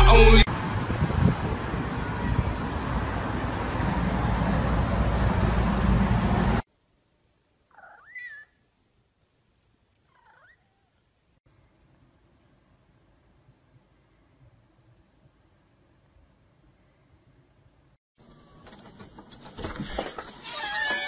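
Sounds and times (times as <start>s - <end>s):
hip-hop music: 0.0s - 0.5s
cat meowing: 7.7s - 8.6s, 10.1s - 11.0s, 20.4s - 21.0s.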